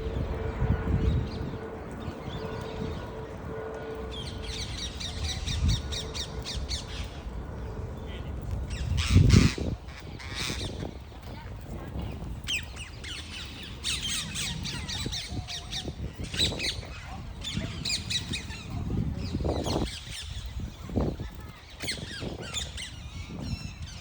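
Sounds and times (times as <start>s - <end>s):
parrots chattering and squawking: 9.0s - 10.8s.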